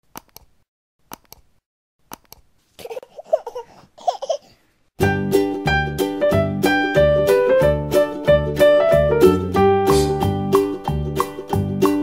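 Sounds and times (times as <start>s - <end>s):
child laughing and babbling: 2.8s - 4.5s
cheerful electric piano music: 5.0s - 12.0s.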